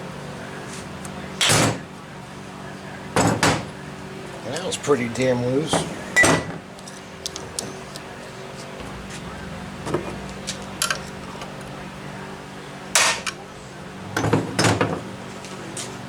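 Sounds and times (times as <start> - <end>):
steady low hum: 0.0 - 16.0
metal tools clinking and clanking: 9.9 - 11.5.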